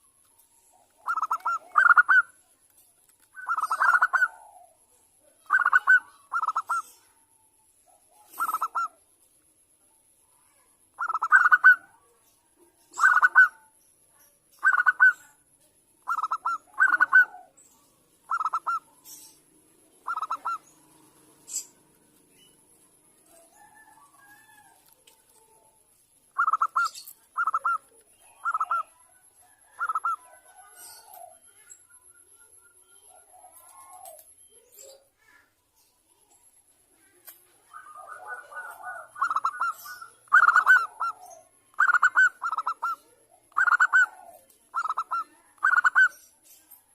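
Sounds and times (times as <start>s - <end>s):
dove cooing trilled phrases: 0.0s - 2.4s, 3.4s - 7.2s, 7.9s - 9.0s, 10.9s - 12.1s, 12.8s - 13.7s, 14.5s - 21.9s, 26.3s - 35.0s, 37.0s - 46.3s.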